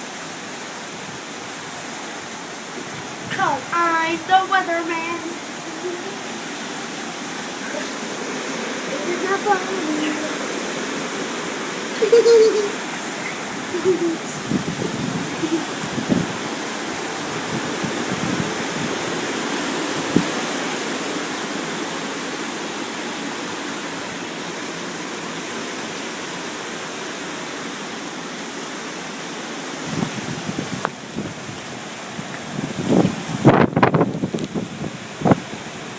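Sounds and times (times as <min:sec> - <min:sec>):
hurricane wind and rain: 0:00.0 - 0:35.9
gusty rumbling: 0:13.2 - 0:19.2.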